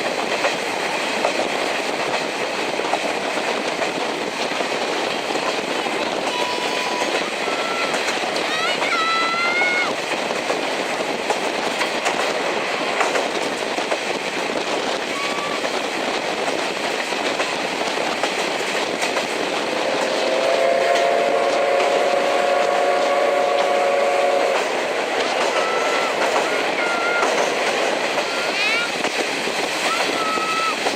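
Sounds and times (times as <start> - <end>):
train rolling on jointed track: 0.0 - 30.9
steam whistle blast: 20.2 - 24.6, 25.5 - 27.3.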